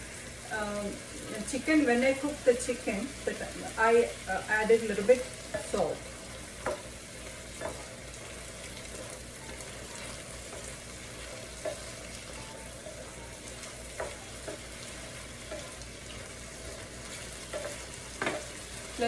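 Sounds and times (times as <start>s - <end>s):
food sizzling in a skillet: 0.0s - 19.0s
wooden spatula knocking on pan: 6.6s - 6.9s, 7.5s - 7.9s, 13.5s - 15.7s, 17.5s - 18.6s.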